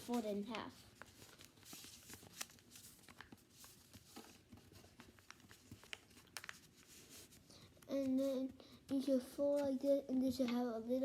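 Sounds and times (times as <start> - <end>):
paper being folded: 0.0 - 8.2.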